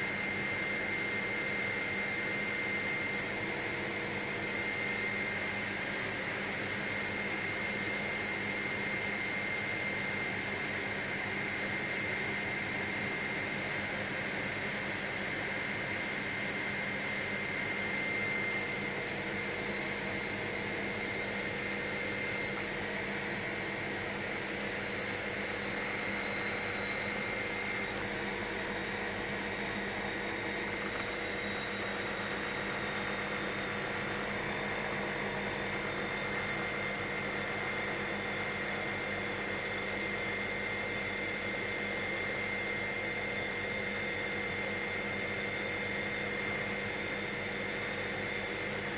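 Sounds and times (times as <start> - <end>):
helicopter engine and rotor drone: 0.0 - 48.9.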